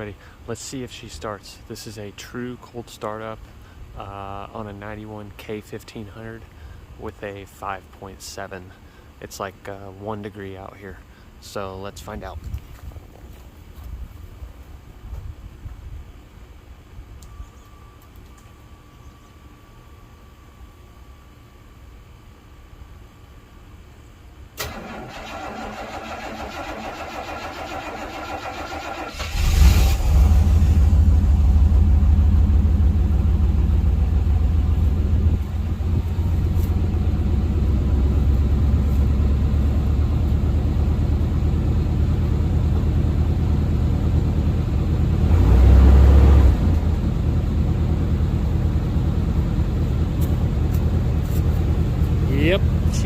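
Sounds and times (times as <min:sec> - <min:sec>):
engine idling low: 0:24.5 - 0:53.0.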